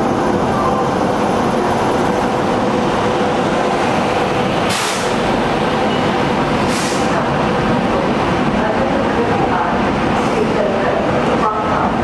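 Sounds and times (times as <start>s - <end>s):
train rumbling and rattling: 0.0s - 12.0s
short air hisses: 4.7s - 5.2s, 6.7s - 7.1s.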